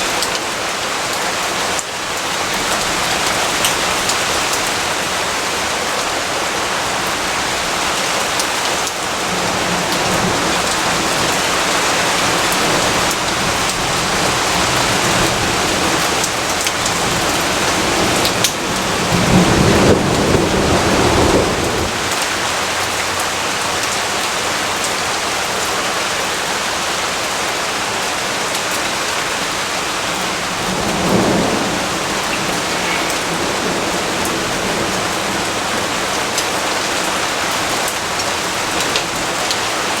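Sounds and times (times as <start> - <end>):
heavy rainfall: 0.0 - 40.0
thunder rumbling: 9.0 - 23.0, 29.4 - 38.0.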